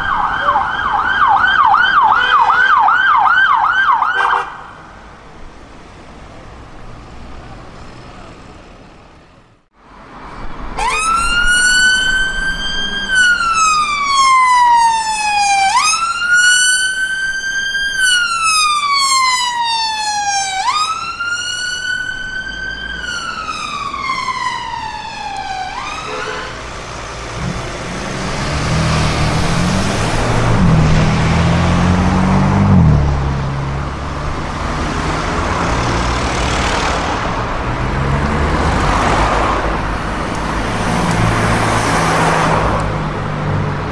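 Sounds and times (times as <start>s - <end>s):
emergency siren wailing: 0.0s - 4.9s, 10.8s - 36.2s
road traffic noise: 0.0s - 43.9s
vehicle engine revving: 26.1s - 43.9s.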